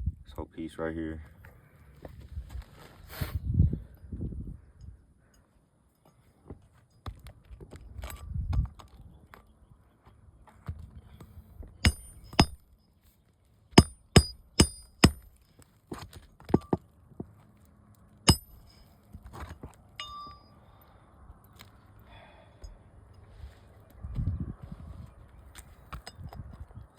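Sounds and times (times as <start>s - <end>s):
hammer striking metal: 11.8s - 12.6s, 13.8s - 15.3s, 18.3s - 18.8s.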